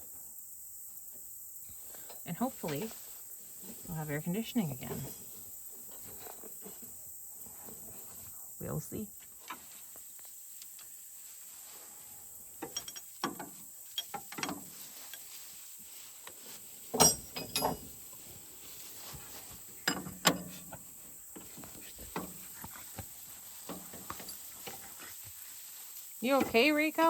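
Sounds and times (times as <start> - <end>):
wrenches clanking on metal: 12.6 - 14.6, 17.0 - 17.9.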